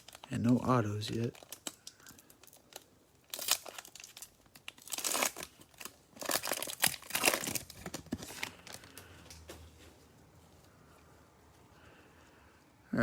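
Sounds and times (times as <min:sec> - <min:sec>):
plastic wrapper crinkling and tearing: 0:00.0 - 0:09.5.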